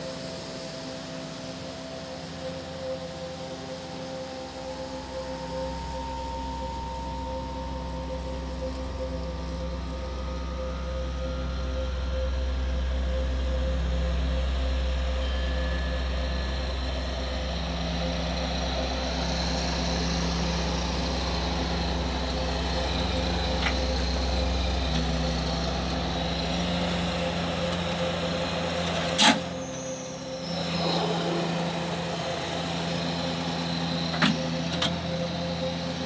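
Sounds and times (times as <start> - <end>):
engine running: 0.0 - 36.0.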